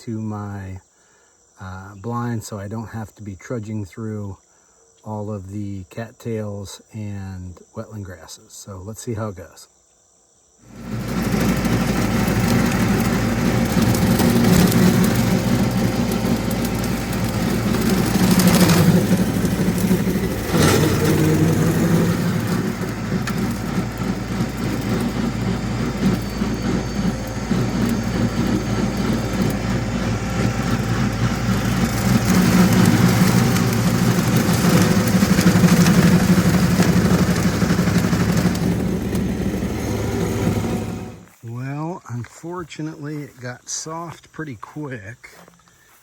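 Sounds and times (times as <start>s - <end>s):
tractor engine running: 10.7s - 41.3s.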